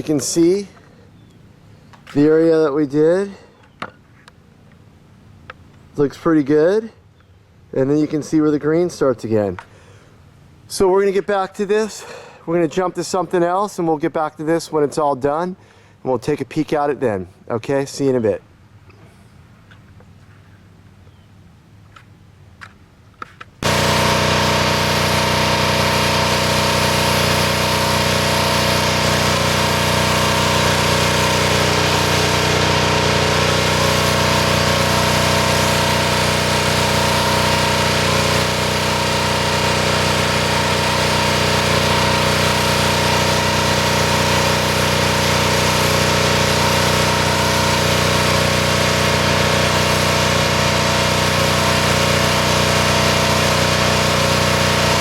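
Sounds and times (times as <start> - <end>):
small engine running: 23.6 - 55.0.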